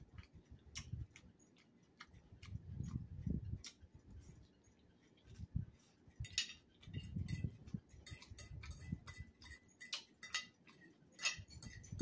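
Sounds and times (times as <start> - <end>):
chewing salad: 0.0 - 12.0
fork clinking against plate: 6.2 - 12.0.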